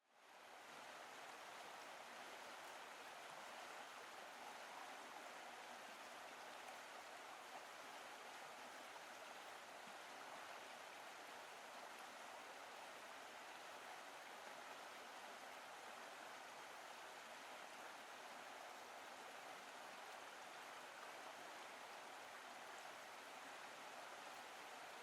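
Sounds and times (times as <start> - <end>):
faint rushing river: 0.0 - 25.0.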